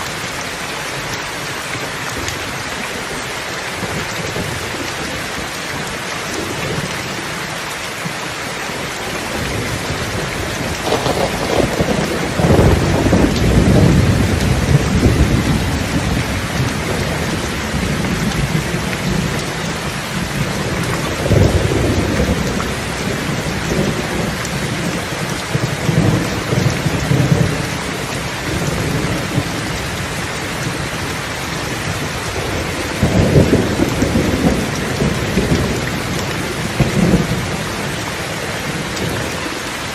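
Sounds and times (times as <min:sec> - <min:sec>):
steady rain falling: 0:00.0 - 0:39.9
low rumbling thunder: 0:09.2 - 0:39.4.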